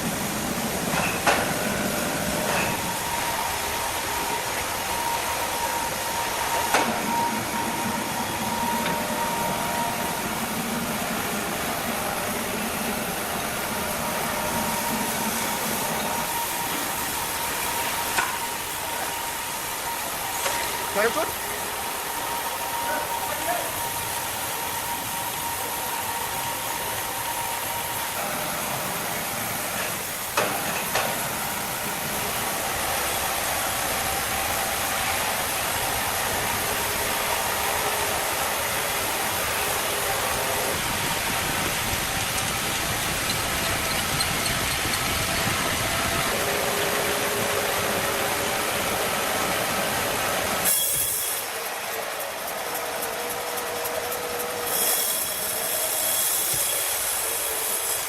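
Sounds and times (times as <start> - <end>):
machinery hissing: 0.0 - 58.0.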